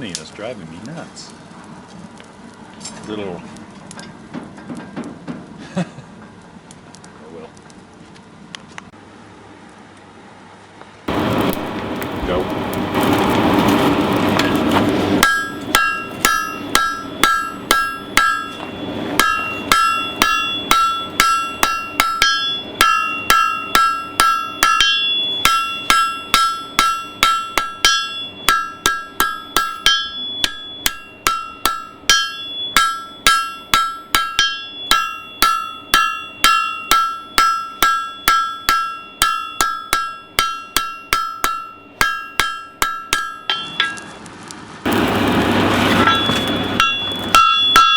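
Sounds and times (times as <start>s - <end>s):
hammer striking metal on anvil: 15.2s - 44.2s, 46.0s - 47.9s.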